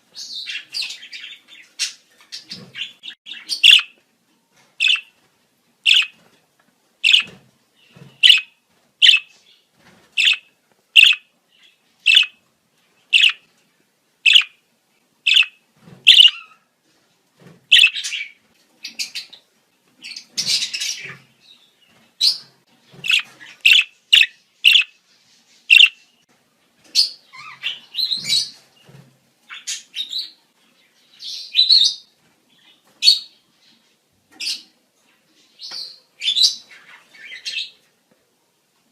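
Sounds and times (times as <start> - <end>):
budgerigars chirping: 0.2 - 4.0, 4.8 - 5.1, 5.9 - 6.2, 7.0 - 7.4, 8.2 - 9.4, 10.2 - 11.3, 12.0 - 12.4, 13.1 - 13.4, 14.3 - 14.6, 15.3 - 16.6, 17.7 - 19.4, 23.0 - 25.0, 25.7 - 26.0
budgerigars chattering warbles: 1.8 - 3.9, 4.8 - 5.0, 5.9 - 6.1, 7.0 - 7.3, 8.2 - 9.3, 10.2 - 10.4, 11.0 - 11.2, 12.1 - 12.4, 13.2 - 13.4, 14.3 - 14.5, 15.3 - 15.5, 16.1 - 16.4, 17.7 - 18.2, 23.0 - 24.9, 25.7 - 26.0.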